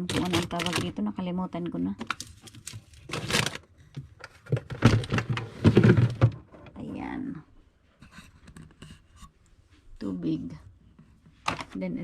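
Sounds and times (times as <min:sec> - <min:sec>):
food packages rustling and knocking: 0:00.0 - 0:06.8.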